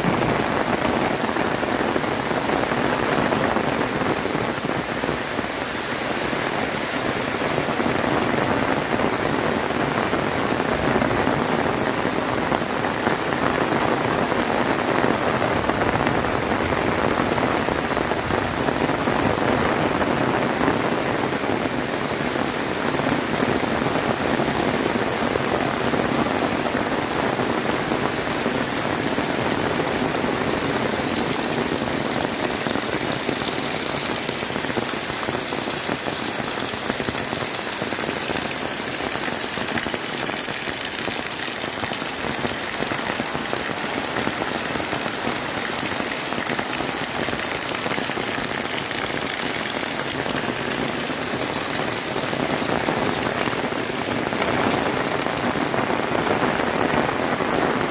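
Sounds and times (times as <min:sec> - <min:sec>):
heavy rain pouring: 0:00.0 - 0:57.9.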